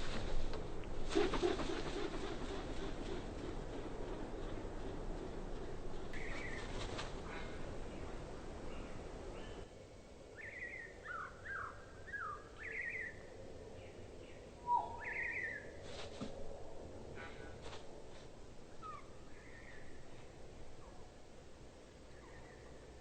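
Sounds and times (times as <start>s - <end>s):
bird whistling calls: 10.4s - 13.2s, 14.6s - 15.6s.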